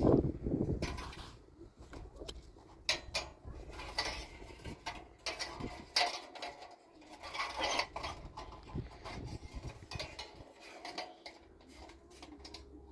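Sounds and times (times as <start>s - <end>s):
metallic clinks and rattles: 2.8s - 12.9s.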